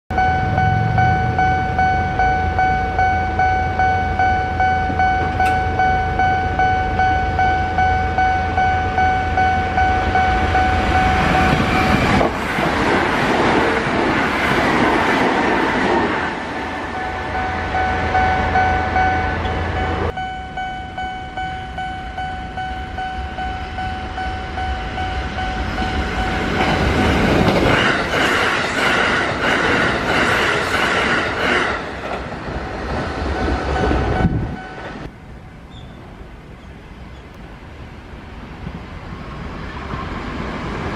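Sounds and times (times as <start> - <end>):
level crossing bells ringing: 0.1 - 12.2, 16.6 - 27.4, 33.3 - 35.1
train passing at high speed: 0.2 - 40.9.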